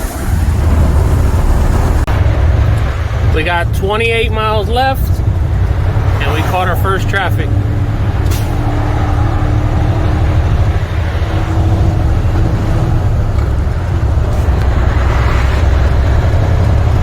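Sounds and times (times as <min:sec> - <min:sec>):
road noise inside cab: 0:00.0 - 0:17.0
truck diesel engine rumble: 0:00.0 - 0:17.0.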